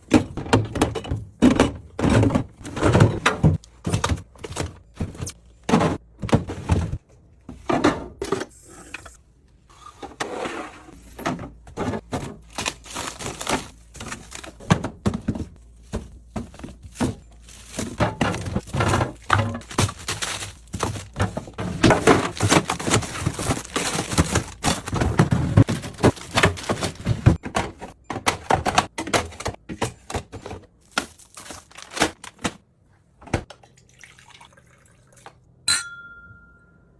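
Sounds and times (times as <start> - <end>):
containers and bottles set down: 11.7 - 30.6
packaging crinkling: 12.4 - 14.6, 16.6 - 27.2, 30.8 - 32.6.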